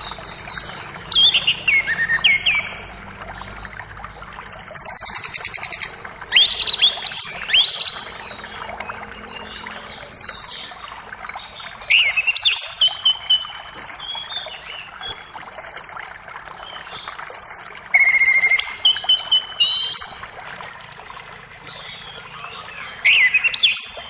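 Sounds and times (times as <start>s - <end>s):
bird chirps: 0.0s - 3.0s, 4.4s - 10.8s, 11.4s - 16.0s, 21.6s - 24.0s
creek water rushing: 0.0s - 24.0s.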